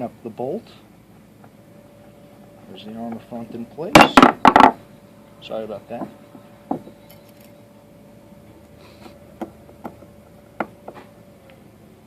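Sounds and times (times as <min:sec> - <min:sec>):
faint steady hum: 0:00.0 - 0:12.0
small metal parts clicking: 0:07.0 - 0:07.6.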